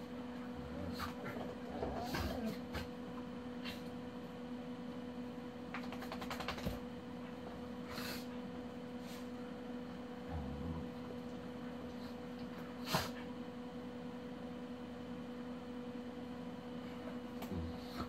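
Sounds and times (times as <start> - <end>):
steady electrical hum: 0.0 - 18.0
pet hissing breaths: 7.8 - 9.4, 11.9 - 13.4.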